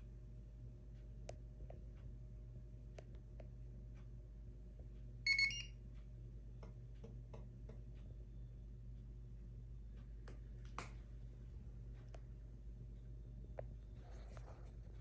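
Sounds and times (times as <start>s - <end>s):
steady low hum: 0.0s - 15.0s
dishwasher electronic beep: 5.3s - 5.7s.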